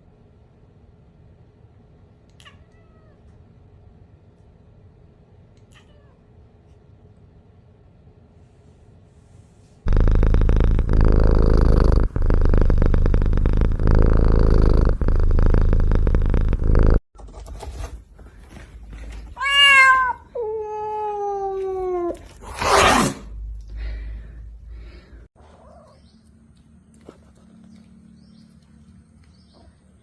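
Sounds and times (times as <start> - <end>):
cat meowing: 2.3 - 3.3, 5.6 - 6.2, 19.4 - 22.2
cat purring: 9.8 - 17.0.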